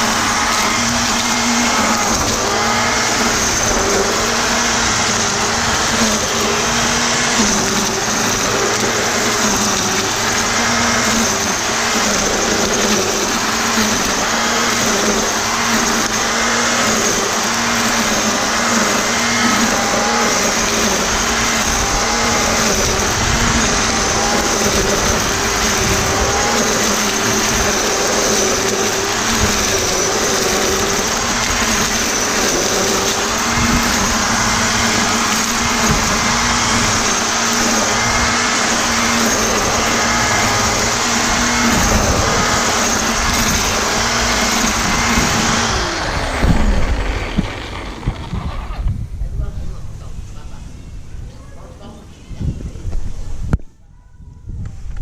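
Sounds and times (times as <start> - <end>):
string trimmer whirring through grass: 0.0 - 49.2
motor winding down whine: 0.0 - 49.4.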